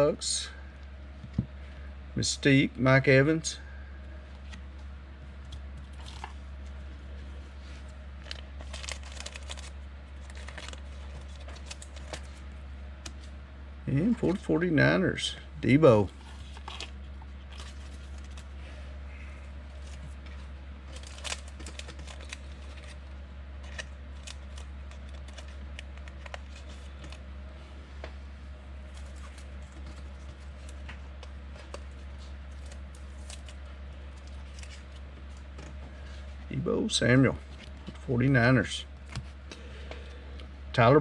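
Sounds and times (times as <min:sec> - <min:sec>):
low hum: 0:00.0 - 0:41.0
trading cards clicking and rustling: 0:08.2 - 0:12.4, 0:16.0 - 0:18.6, 0:19.8 - 0:23.0, 0:23.6 - 0:27.2, 0:28.9 - 0:35.8.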